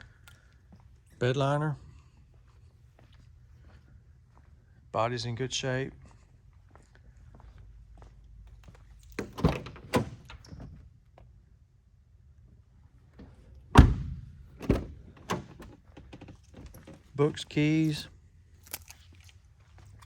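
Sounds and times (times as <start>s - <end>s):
truck door slamming: 9.2s - 10.7s, 13.2s - 16.8s
truck door clicks and thunks: 9.2s - 10.8s, 13.2s - 17.1s.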